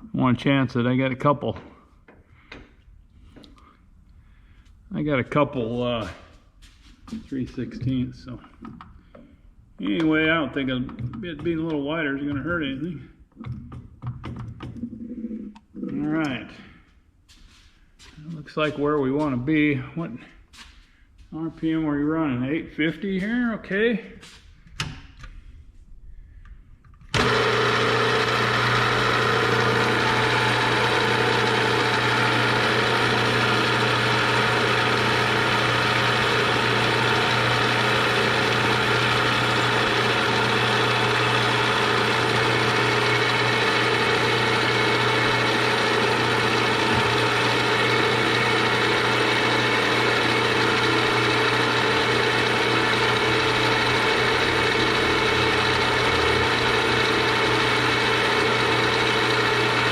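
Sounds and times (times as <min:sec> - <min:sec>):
milling machine running: 0:27.2 - 0:59.9.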